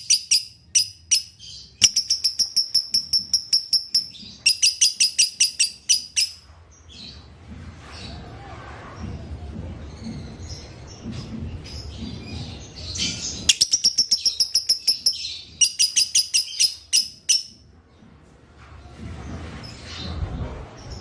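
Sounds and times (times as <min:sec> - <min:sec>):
lovebird trilling: 0:00.0 - 0:06.4, 0:13.5 - 0:17.5
soft bird twittering: 0:00.0 - 0:06.4, 0:11.8 - 0:17.6.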